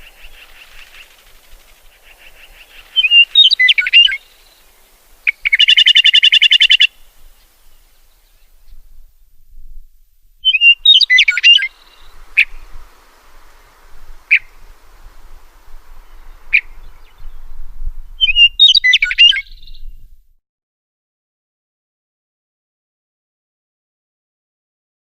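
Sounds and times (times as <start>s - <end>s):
songbird twittering: 0.0s - 8.8s, 10.4s - 20.1s.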